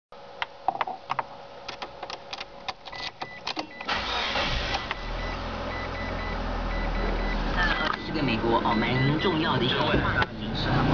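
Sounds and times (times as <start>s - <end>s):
car engine starting and running: 3.6s - 10.9s.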